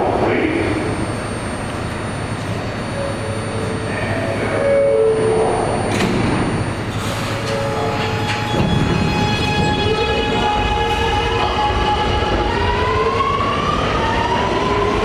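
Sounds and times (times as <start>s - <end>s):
subway train rumble and clatter: 0.0s - 15.0s.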